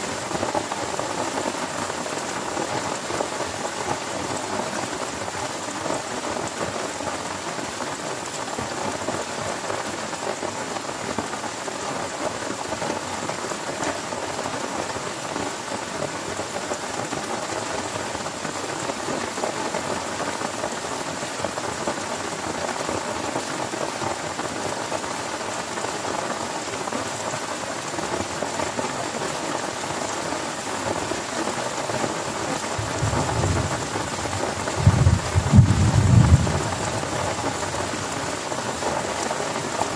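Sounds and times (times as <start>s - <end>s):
heavy rain on a tent: 0.0s - 39.9s
low thunder rumble: 32.8s - 37.2s.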